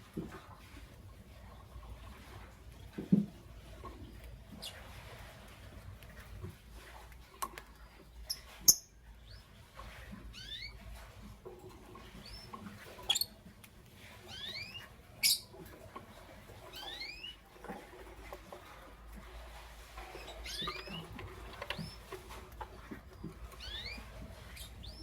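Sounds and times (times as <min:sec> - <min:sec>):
lovebirds chirping: 0:12.1 - 0:13.4, 0:14.3 - 0:15.6, 0:16.7 - 0:17.5, 0:20.1 - 0:25.0.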